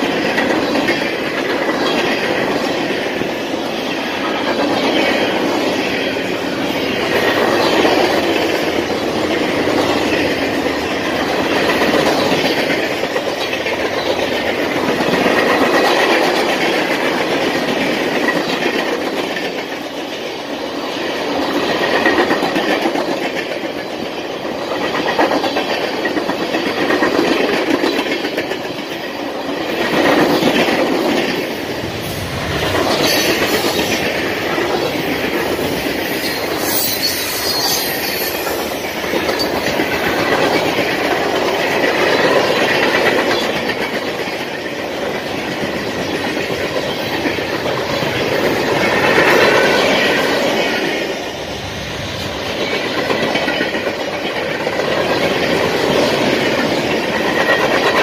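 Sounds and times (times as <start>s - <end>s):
train wheels rumbling and clacking: 0.0s - 58.0s
high wheel squeal: 36.1s - 38.8s.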